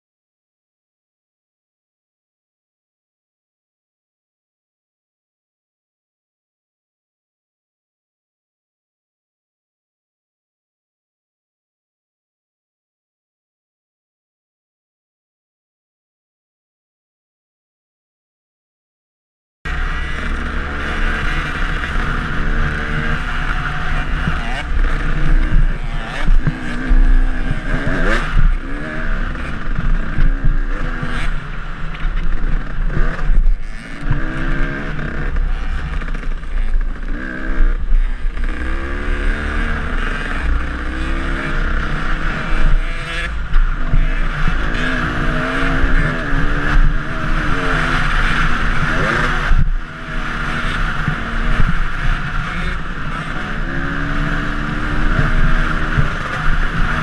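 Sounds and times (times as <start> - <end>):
dirt bike engine revving: 19.7 - 57.0.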